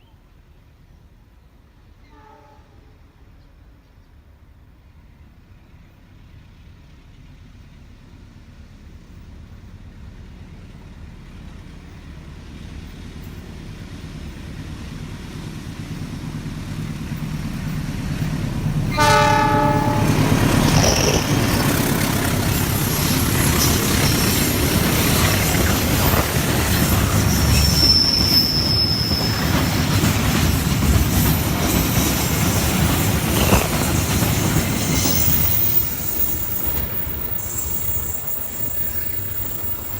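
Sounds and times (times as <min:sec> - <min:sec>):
train horn blast: 0:02.1 - 0:03.0, 0:18.9 - 0:21.4
train wheels rumbling on rails: 0:03.6 - 0:39.9
high wheel squeal: 0:19.0 - 0:30.0, 0:34.5 - 0:39.9.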